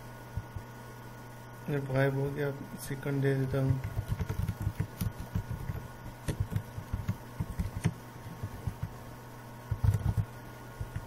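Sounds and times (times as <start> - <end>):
steady low hum: 0.0 - 11.0
typing on a keyboard: 3.7 - 8.9, 9.7 - 10.2.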